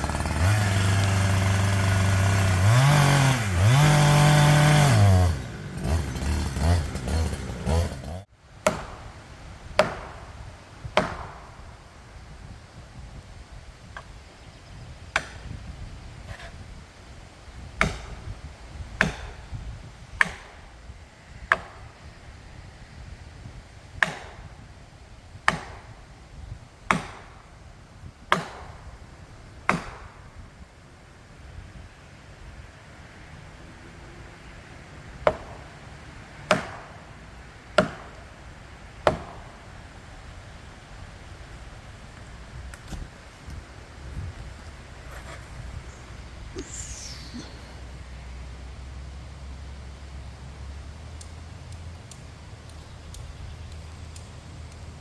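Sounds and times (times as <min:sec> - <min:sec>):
tool striking wood: 0:00.0 - 0:09.1, 0:09.8 - 0:10.3, 0:10.9 - 0:11.5, 0:17.8 - 0:18.3, 0:19.0 - 0:19.4, 0:20.2 - 0:20.6, 0:24.0 - 0:24.4, 0:25.5 - 0:25.9, 0:26.9 - 0:27.3, 0:28.3 - 0:28.8, 0:29.7 - 0:30.1, 0:35.3 - 0:35.6, 0:36.5 - 0:36.9, 0:37.8 - 0:38.2, 0:39.0 - 0:39.4
heavy blows into wood: 0:00.0 - 0:11.7.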